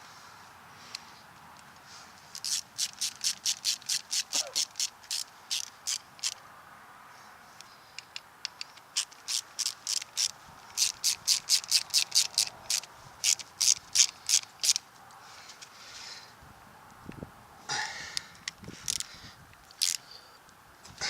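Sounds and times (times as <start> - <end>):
hand tool rasping on metal joint: 2.4 - 6.3.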